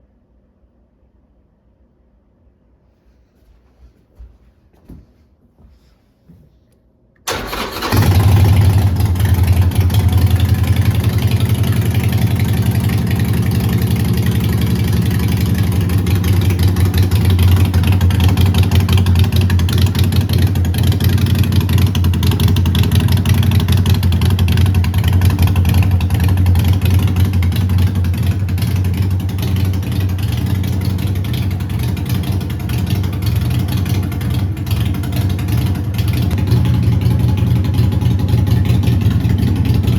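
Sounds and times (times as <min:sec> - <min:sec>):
motorcycle starter cranking: 0:07.3 - 0:26.8
motorcycle engine idling: 0:07.3 - 0:39.9.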